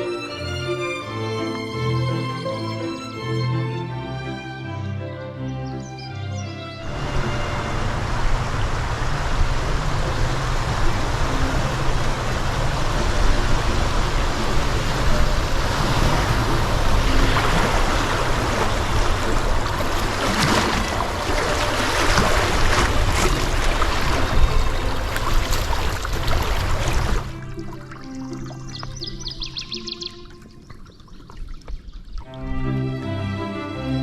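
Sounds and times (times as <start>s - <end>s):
river water rushing: 6.6s - 30.7s
water splashing: 6.8s - 33.3s.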